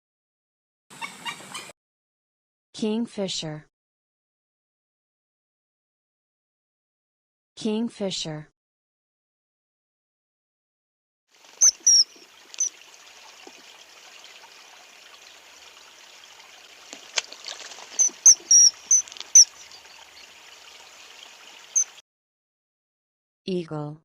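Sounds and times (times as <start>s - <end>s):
kingfisher shrill calls: 0.9s - 1.7s, 11.6s - 12.8s, 17.9s - 20.0s, 21.7s - 22.0s
stream rushing: 11.4s - 21.9s.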